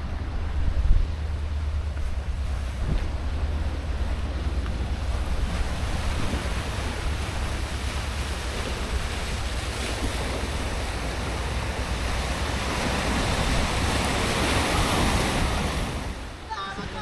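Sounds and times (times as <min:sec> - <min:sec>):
sea surf breaking: 0:00.0 - 0:17.0
wind rumbling on microphone: 0:00.0 - 0:17.0.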